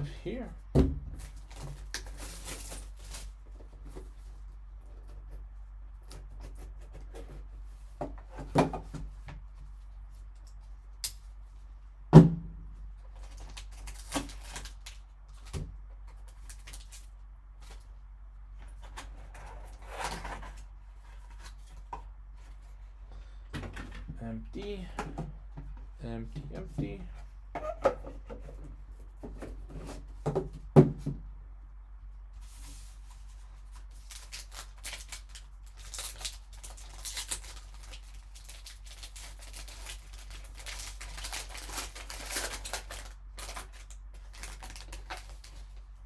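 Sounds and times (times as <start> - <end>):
cardboard and plastic knocks: 0.7 - 1.3, 30.2 - 31.2
packaging crinkling and rustling: 1.1 - 8.0, 13.0 - 22.9, 32.4 - 46.0.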